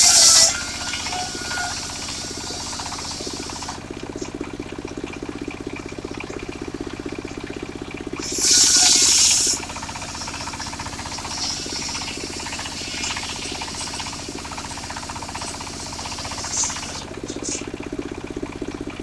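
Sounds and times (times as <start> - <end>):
saw blade cutting timber: 0.0 - 3.8, 8.2 - 17.6
circular sawmill running: 0.0 - 19.0.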